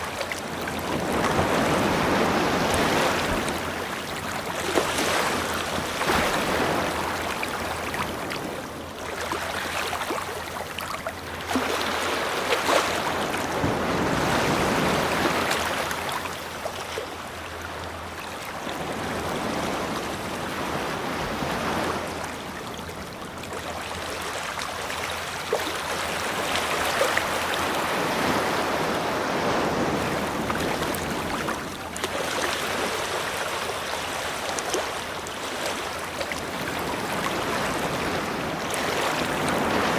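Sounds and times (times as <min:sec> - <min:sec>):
ocean waves washing onto beach: 0:00.0 - 0:39.9.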